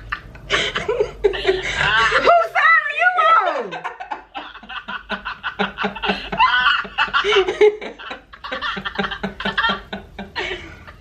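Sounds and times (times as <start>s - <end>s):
people laughing: 3.4s - 11.0s.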